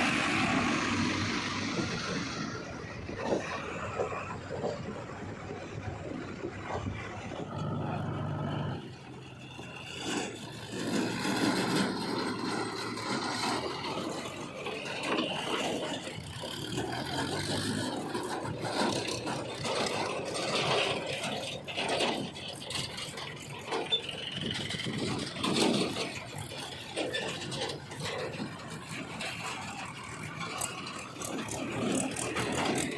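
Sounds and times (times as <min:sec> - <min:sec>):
heavy machinery engines running: 0:00.0 - 0:32.9
scraping and clattering: 0:09.6 - 0:32.9.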